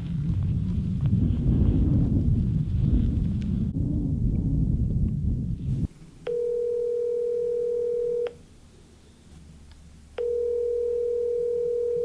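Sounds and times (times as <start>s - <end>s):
wind on microphone: 0.0s - 6.1s
phone ringback tone: 6.2s - 8.4s, 10.2s - 12.0s.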